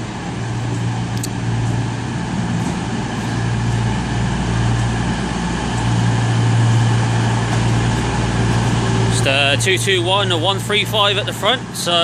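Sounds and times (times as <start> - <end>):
diesel train engines droning: 0.0 - 12.0
sharp click: 1.2 - 1.4.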